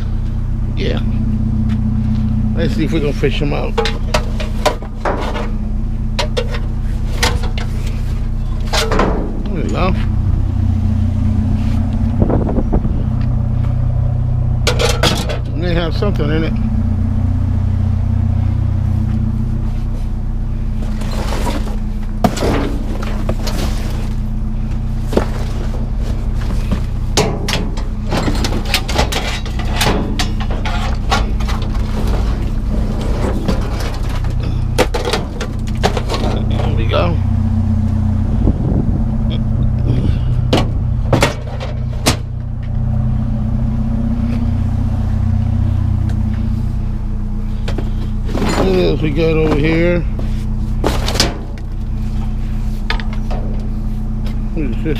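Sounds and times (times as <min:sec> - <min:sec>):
low engine hum: 0:00.0 - 0:54.9
objects clattering: 0:03.7 - 0:10.1, 0:14.6 - 0:15.5, 0:20.8 - 0:24.3, 0:25.0 - 0:37.0, 0:40.5 - 0:42.3, 0:47.7 - 0:51.8.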